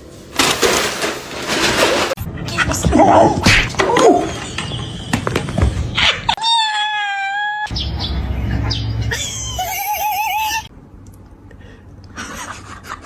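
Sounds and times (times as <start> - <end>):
animal calling: 6.0 - 10.7.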